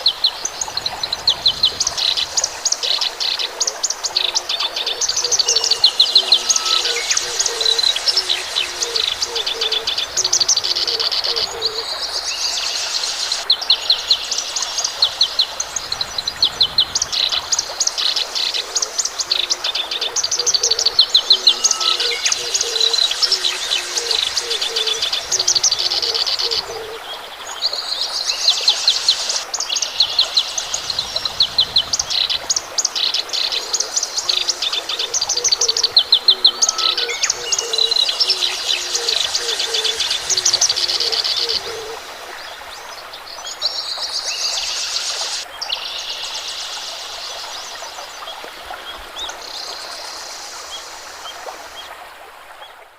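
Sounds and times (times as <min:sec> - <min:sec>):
birds chirping and singing: 0:00.3 - 0:12.5, 0:18.7 - 0:27.0, 0:30.0 - 0:42.0.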